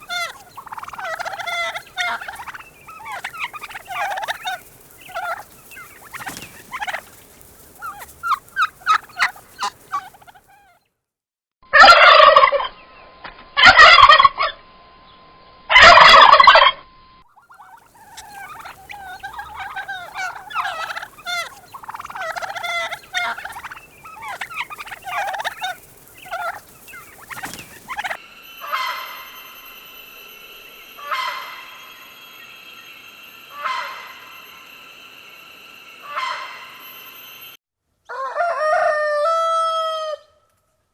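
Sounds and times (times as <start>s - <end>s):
turkey chattering calls: 0.0s - 10.8s, 17.3s - 28.8s
turkeys gobbling: 0.0s - 10.8s, 11.8s - 12.7s, 13.6s - 14.5s, 15.7s - 16.7s, 17.3s - 29.2s, 31.0s - 32.1s, 33.5s - 34.7s, 36.0s - 36.9s
steady background tone: 17.5s - 37.6s.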